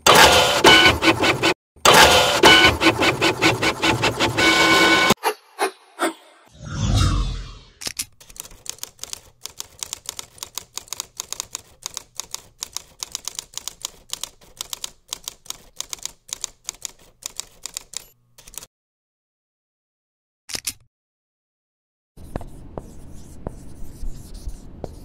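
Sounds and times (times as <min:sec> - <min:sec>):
typewriter keys clacking: 0:07.9 - 0:18.7.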